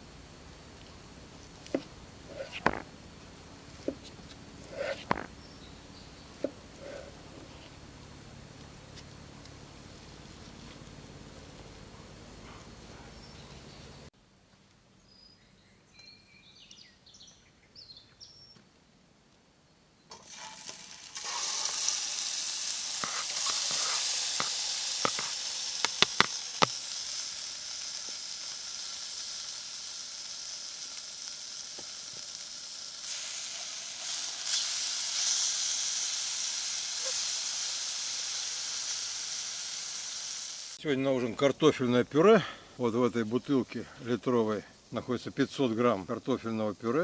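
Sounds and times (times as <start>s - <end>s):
sausage sizzling in a pan: 1.1s - 2.9s, 20.1s - 40.8s
fat spattering pops: 1.6s - 2.9s, 3.8s - 5.4s, 22.9s - 27.0s.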